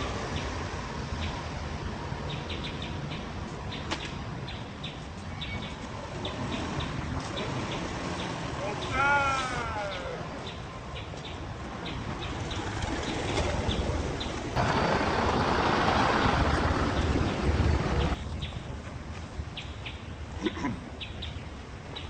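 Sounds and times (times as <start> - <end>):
loud rushing noise: 12.5 - 18.2.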